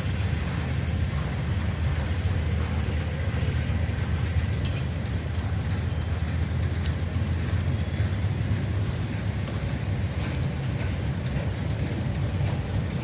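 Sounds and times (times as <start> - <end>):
work train rumbling by: 0.0 - 13.0.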